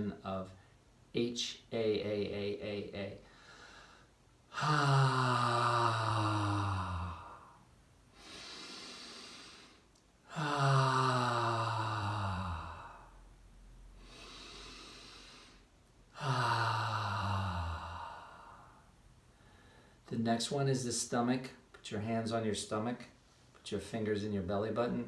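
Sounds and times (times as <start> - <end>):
man breathing in: 3.2 - 13.3, 13.9 - 20.0
man breathing out long haaa: 3.3 - 7.6, 8.2 - 13.3, 16.2 - 19.9.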